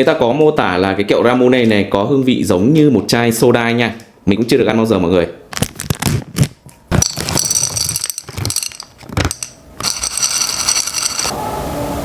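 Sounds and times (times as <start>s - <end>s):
plastic packaging clicking and crackling: 5.5s - 11.3s.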